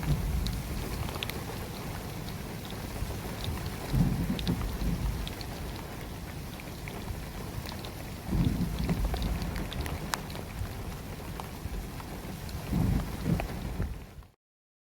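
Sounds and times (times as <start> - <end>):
low rumbles: 0.0 - 5.5
heavy rain falling: 0.0 - 14.3.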